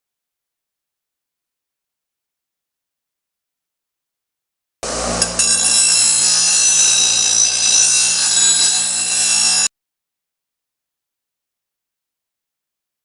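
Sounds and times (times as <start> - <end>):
motor hum: 4.8 - 9.7
cutting tool screeching on steel: 4.9 - 9.7.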